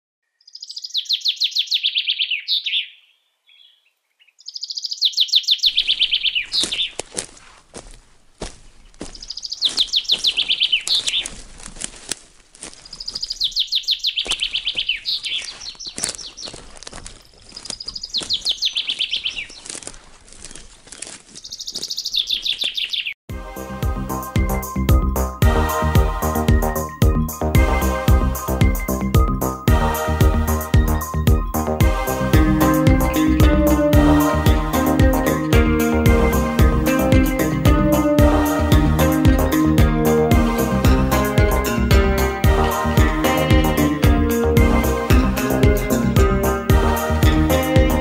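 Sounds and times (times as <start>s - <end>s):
songbird trilling: 0.3s - 7.0s, 9.0s - 11.4s, 12.8s - 16.7s, 17.3s - 19.7s, 21.4s - 23.2s, 30.6s - 31.8s
music with a beat: 23.3s - 48.0s.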